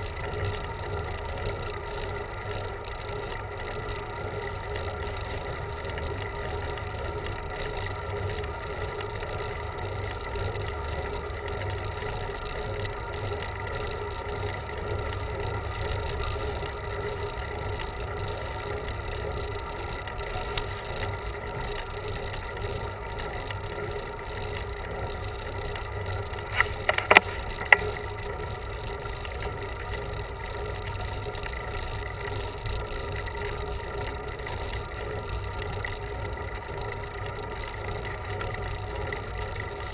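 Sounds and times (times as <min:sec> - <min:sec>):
sharp clicks: 0:26.1 - 0:28.1.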